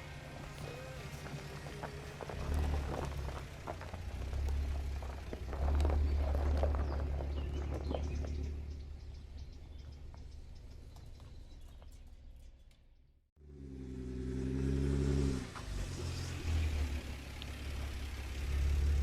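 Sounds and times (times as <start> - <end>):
birds chirping: 0.3 - 12.9.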